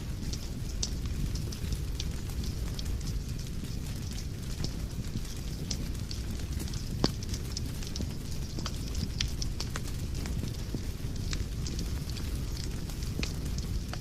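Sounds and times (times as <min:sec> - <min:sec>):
fire flames rumbling: 0:00.0 - 0:14.0
fire popping and snapping: 0:00.0 - 0:14.0.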